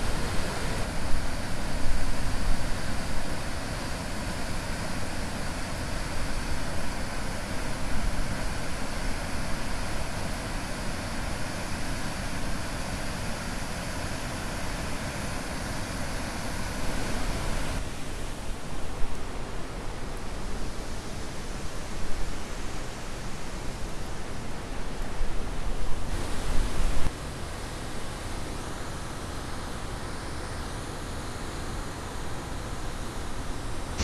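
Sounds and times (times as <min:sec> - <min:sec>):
waterfall roaring: 0:00.0 - 0:24.3.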